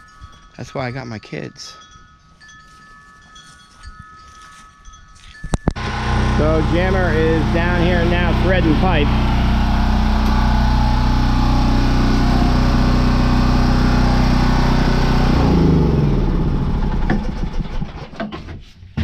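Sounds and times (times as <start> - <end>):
motor winding down: 5.8 - 18.0
pipe-threading machine running: 5.8 - 18.0.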